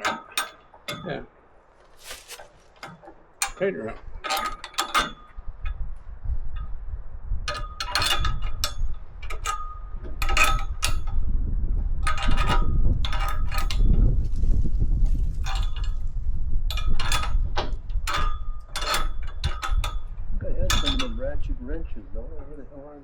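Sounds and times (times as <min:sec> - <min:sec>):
wrench clinking on a bolt: 0:00.0 - 0:01.1, 0:03.4 - 0:05.8, 0:07.5 - 0:11.2, 0:12.0 - 0:14.0, 0:15.4 - 0:16.1, 0:16.7 - 0:21.2.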